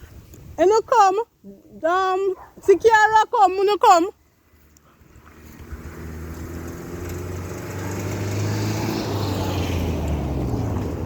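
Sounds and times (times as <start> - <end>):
vehicle engine approaching: 4.2 - 11.0.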